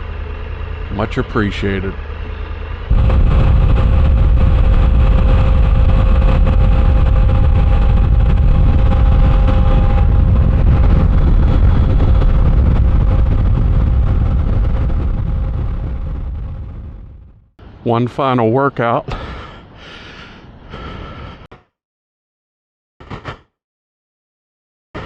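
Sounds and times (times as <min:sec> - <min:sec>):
wind rush on microphone: 0:00.0 - 0:17.5
motorcycle engine drone: 0:00.0 - 0:17.9.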